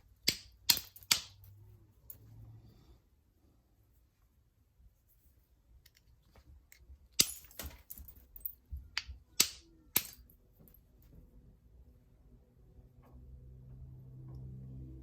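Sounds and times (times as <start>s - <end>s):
stone knapping clicks: 0.2s - 1.4s, 8.9s - 10.2s.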